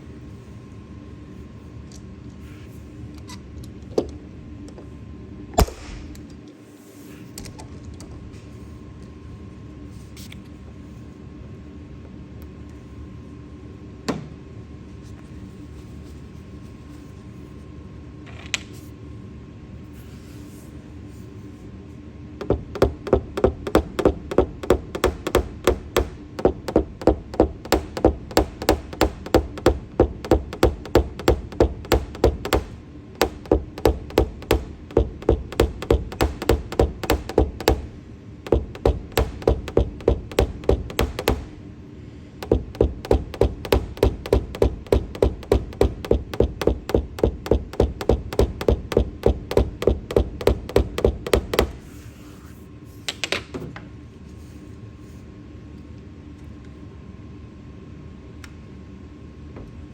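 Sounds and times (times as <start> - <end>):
hammer tapping car roof panel: 22.4 - 41.6, 42.4 - 51.9.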